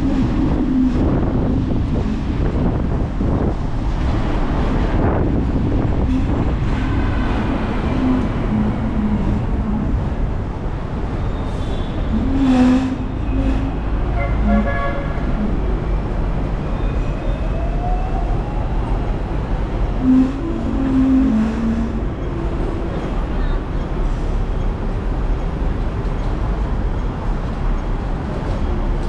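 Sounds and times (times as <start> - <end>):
tram rumbling: 0.0 - 29.0
tram horn toot: 5.8 - 10.3, 11.4 - 16.1, 19.8 - 23.4.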